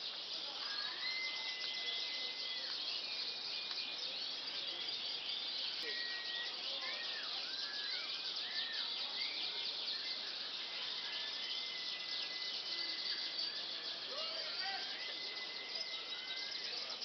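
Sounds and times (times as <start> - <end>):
canaries whistling: 0.0 - 17.0
rapid high chirping: 0.0 - 17.0.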